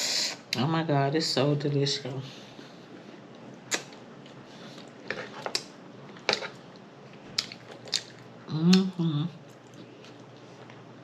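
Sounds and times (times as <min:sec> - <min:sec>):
wet lip smacks: 0:03.7 - 0:04.0.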